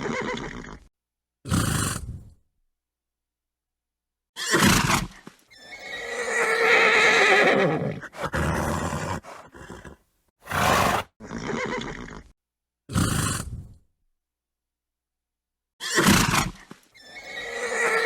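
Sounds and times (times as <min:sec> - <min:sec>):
horses neighing and snorting: 0:04.6 - 0:12.3, 0:16.0 - 0:18.0.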